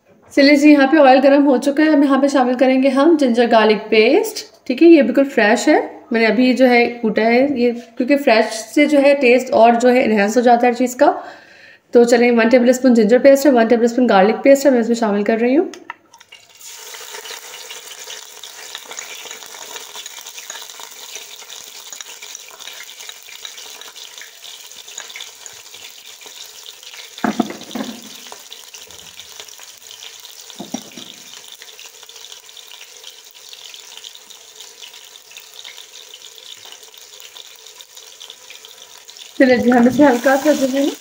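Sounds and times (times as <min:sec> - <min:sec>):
paste frying in hot oil: 0:16.1 - 0:41.0.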